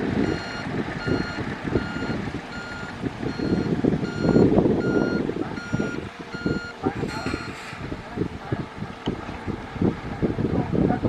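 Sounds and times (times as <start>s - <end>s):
diesel engine rumbling: 0.0s - 11.0s
backup alarm beeping: 0.2s - 7.6s.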